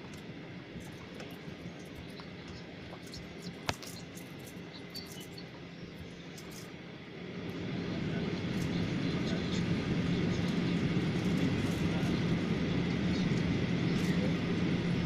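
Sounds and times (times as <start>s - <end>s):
airliner cabin hum: 0.0s - 15.0s
small ticks: 2.1s - 5.4s
jet engines spooling up: 7.2s - 15.0s.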